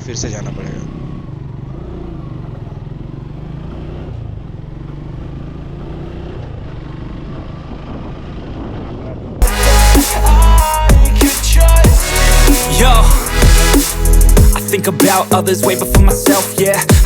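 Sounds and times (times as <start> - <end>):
motorcycle engine running: 0.0 - 14.6
electronic music with heavy bass: 9.4 - 17.0.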